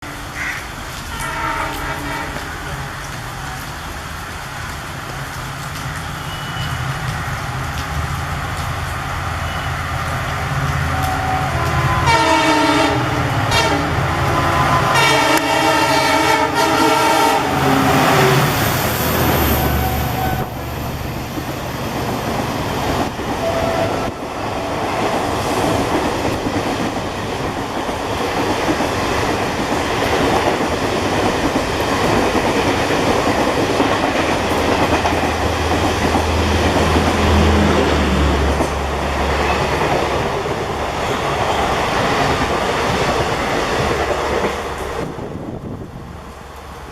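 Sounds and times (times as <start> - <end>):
trains rumbling and wheels clattering: 0.0 - 46.9
locomotive horns blasting: 1.1 - 2.6, 10.9 - 18.4, 23.4 - 24.4.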